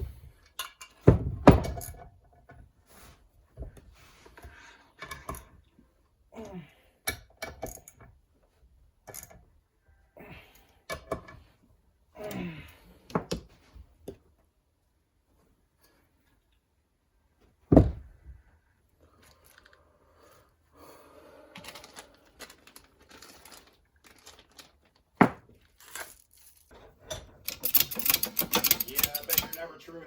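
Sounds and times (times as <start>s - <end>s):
engine parts clicking and knocking: 27.1s - 29.8s.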